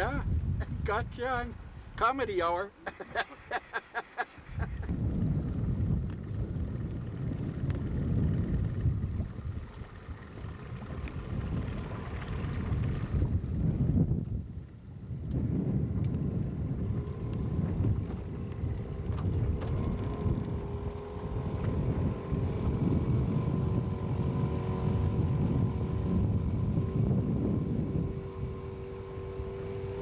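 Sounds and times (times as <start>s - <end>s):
wind buffeting microphone: 0.0s - 2.0s, 4.4s - 30.0s
boat motor humming: 3.2s - 13.7s, 16.1s - 30.0s.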